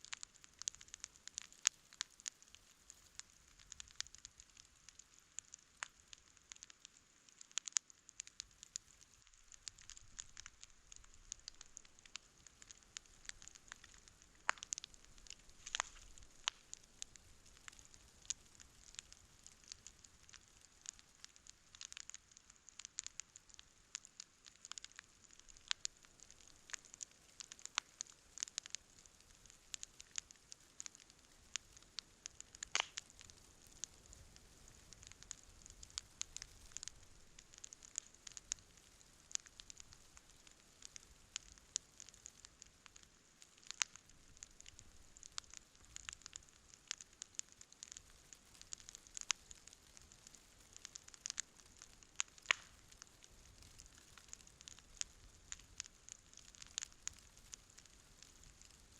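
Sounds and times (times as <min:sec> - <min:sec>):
campfire crackling and popping: 0:00.0 - 0:58.9
faint hiss: 0:00.0 - 0:58.9.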